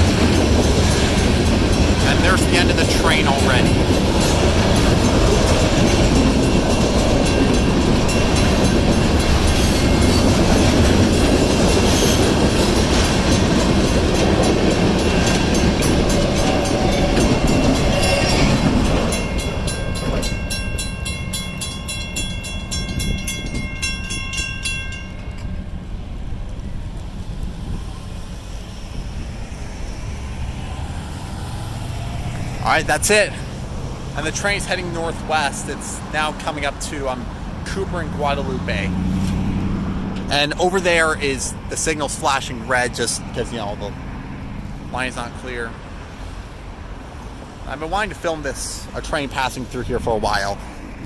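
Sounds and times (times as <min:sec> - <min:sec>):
crossing warning bells ringing: 0:00.0 - 0:27.0, 0:28.3 - 0:50.9
train wheels clattering on rail: 0:00.0 - 0:30.6, 0:32.3 - 0:43.8
low rumble: 0:25.1 - 0:34.6.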